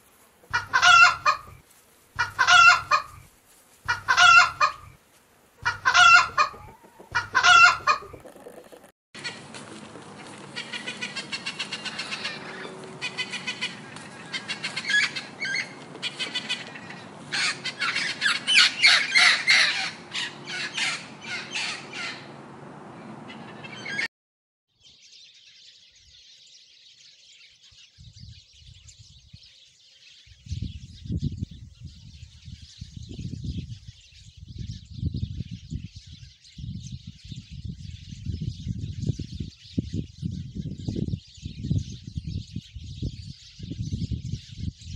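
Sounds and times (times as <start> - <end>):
macaw squawking: 0.5 - 1.6, 2.2 - 3.2, 3.9 - 4.9, 5.6 - 9.5, 10.2 - 22.3.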